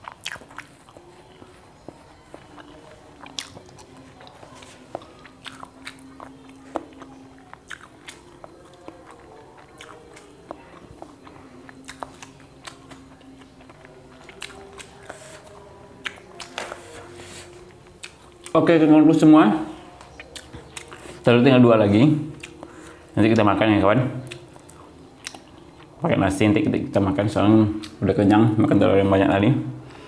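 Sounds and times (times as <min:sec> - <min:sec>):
wet chewing clicks and smacks: 0:00.0 - 0:16.6, 0:17.9 - 0:18.6, 0:19.9 - 0:21.3, 0:22.3 - 0:23.0, 0:24.2 - 0:26.0.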